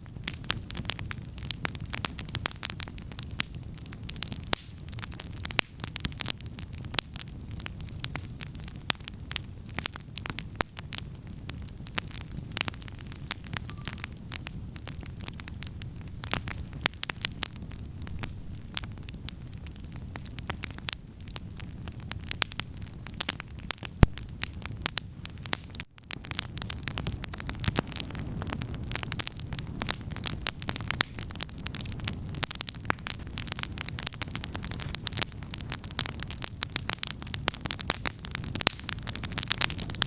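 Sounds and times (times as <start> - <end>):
campfire crackling and popping: 0.0 - 40.0
low steady rumble: 11.1 - 25.3.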